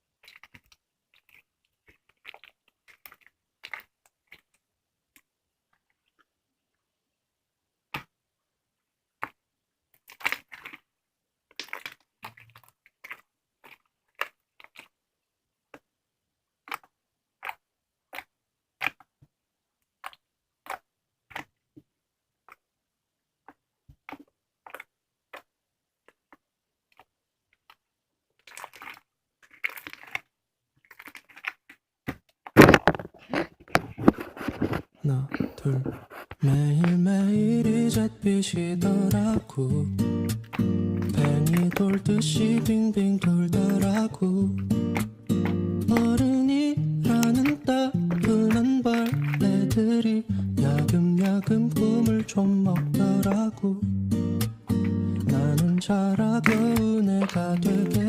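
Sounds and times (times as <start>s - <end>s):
slime clicking and popping: 0.2s - 4.6s, 11.5s - 15.0s, 16.6s - 19.2s, 20.0s - 21.6s, 23.4s - 25.5s, 28.4s - 30.3s, 36.8s - 53.7s, 54.4s - 58.0s.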